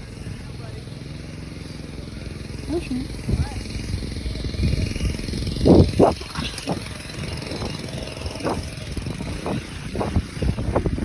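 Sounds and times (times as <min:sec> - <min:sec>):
bicycle tyre rumble: 0:00.0 - 0:11.0
wind on microphone: 0:03.1 - 0:11.0
short thumps: 0:05.6 - 0:07.8.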